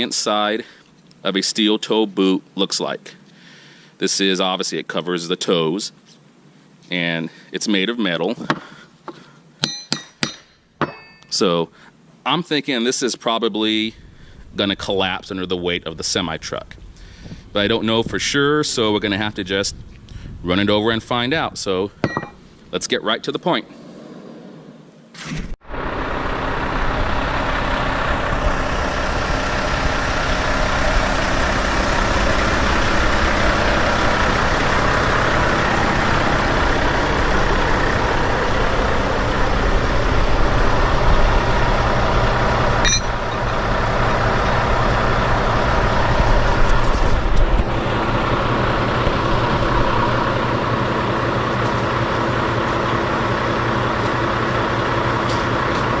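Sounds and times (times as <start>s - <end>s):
truck diesel engine running: 25.7s - 56.0s.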